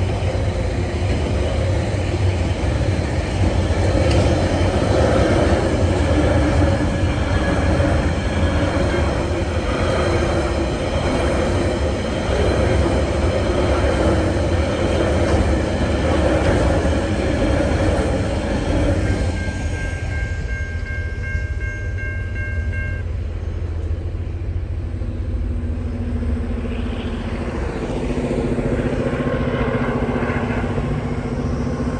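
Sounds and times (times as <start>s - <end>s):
freight train rumbling past: 0.0s - 31.9s
steady high tone: 18.1s - 31.9s
road vehicle engines: 23.0s - 31.9s.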